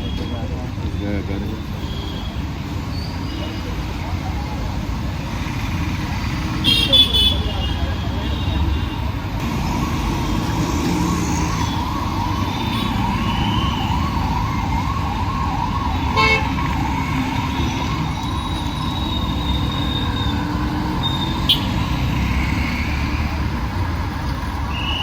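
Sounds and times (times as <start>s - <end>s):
road traffic: 0.0s - 25.0s
emergency siren wailing: 9.4s - 23.8s.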